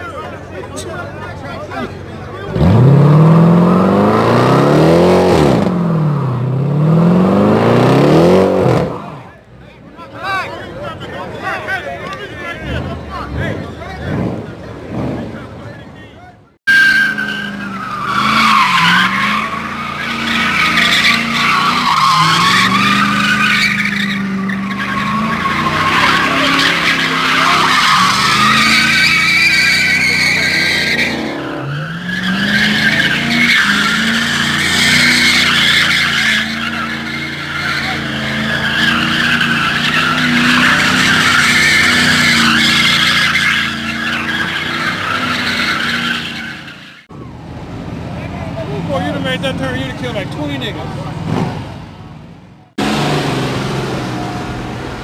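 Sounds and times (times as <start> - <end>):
car engine revving: 1.3 - 9.3, 12.4 - 16.0, 16.7 - 55.0
tyres squealing: 16.7 - 47.1.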